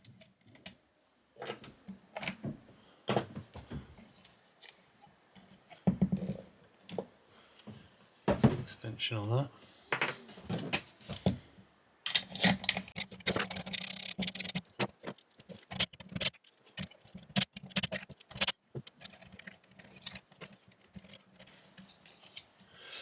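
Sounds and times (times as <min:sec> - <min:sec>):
socket wrench undoing bolts: 0:12.1 - 0:16.4
metal clicking and rattling: 0:12.1 - 0:22.6.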